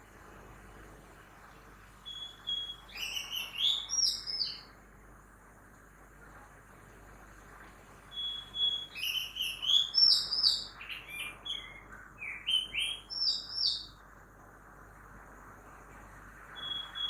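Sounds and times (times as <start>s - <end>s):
faint city noise: 0.0s - 17.0s
songbird singing whistled notes: 2.0s - 4.8s, 8.1s - 14.0s, 16.5s - 17.0s.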